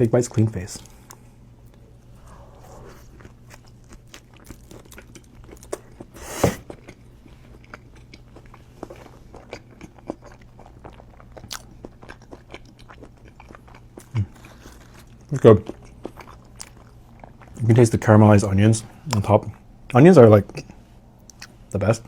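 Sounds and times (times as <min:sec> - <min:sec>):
man chewing with wet mouth clicks: 0:03.1 - 0:17.6, 0:20.6 - 0:21.6.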